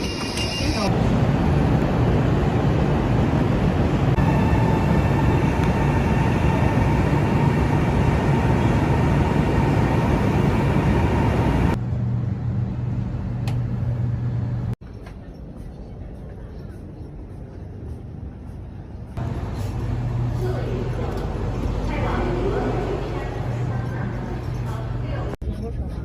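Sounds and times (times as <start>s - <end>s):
train rushing noise: 0.0s - 12.0s, 17.4s - 25.9s
steady low hum: 15.4s - 25.4s.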